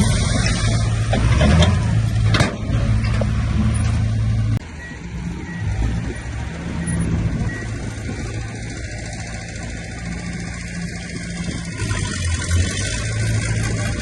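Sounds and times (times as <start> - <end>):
heavy diesel machinery running: 0.0 - 14.0.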